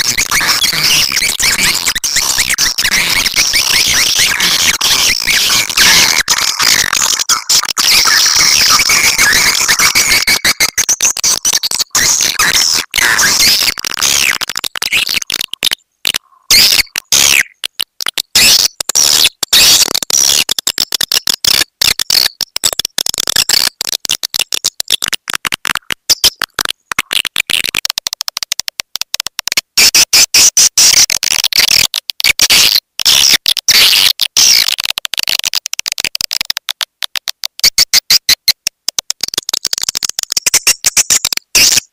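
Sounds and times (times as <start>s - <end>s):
high-pitched bird twittering: 0.0s - 6.4s.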